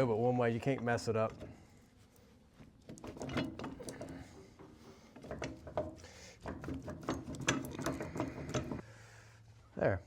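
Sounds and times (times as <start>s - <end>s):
metal parts clicking and knocking: 2.8s - 8.8s.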